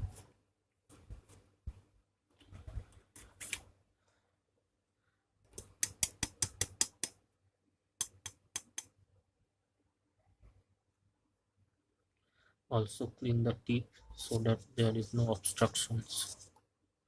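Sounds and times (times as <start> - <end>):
sharp scraping strokes: 14.2 - 16.5.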